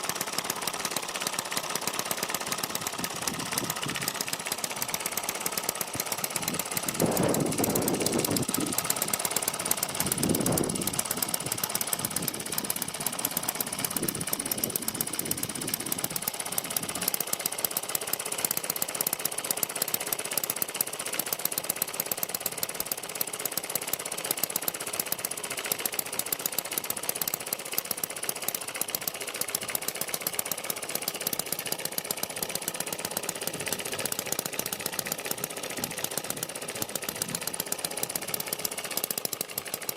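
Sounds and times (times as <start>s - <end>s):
model engine running: 0.0s - 39.9s.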